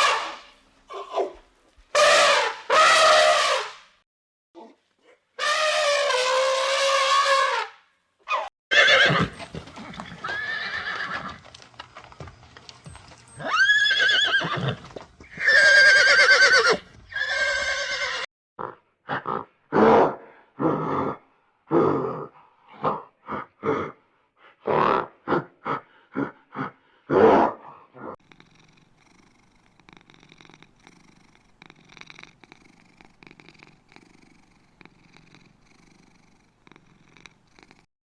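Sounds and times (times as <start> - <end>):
horse whinnying: 8.3 - 11.4, 13.4 - 18.3.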